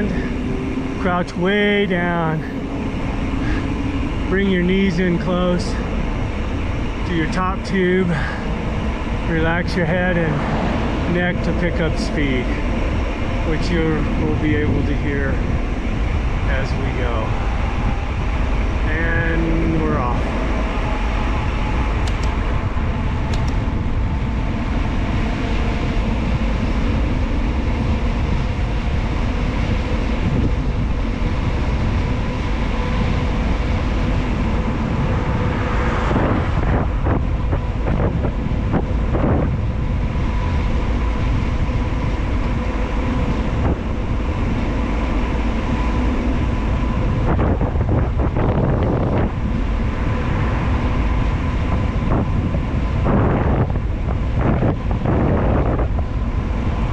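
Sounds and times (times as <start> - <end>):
wind rush on microphone: 0.0 - 56.9.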